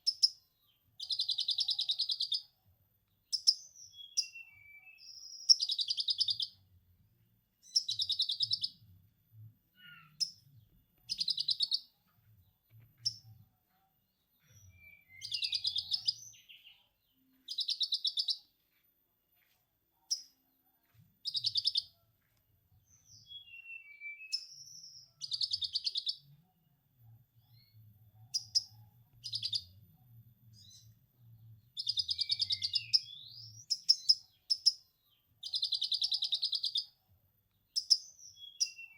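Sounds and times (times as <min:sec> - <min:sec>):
songbird chattering: 0:15.1 - 0:16.6.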